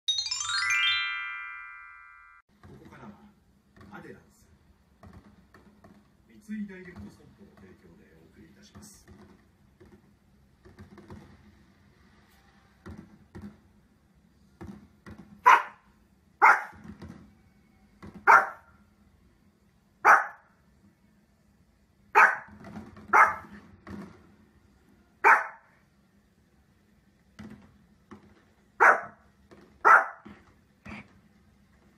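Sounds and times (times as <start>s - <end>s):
small dog barking: 15.4s - 15.8s, 16.4s - 16.8s, 18.3s - 18.7s, 20.0s - 20.5s, 22.2s - 22.5s, 23.1s - 23.5s, 25.2s - 25.7s, 28.8s - 29.2s, 29.8s - 30.3s.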